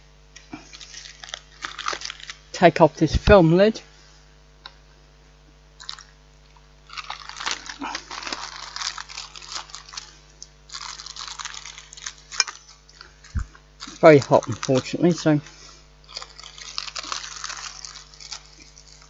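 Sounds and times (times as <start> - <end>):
plastic film peeling: 0.3 - 2.6, 6.8 - 19.0.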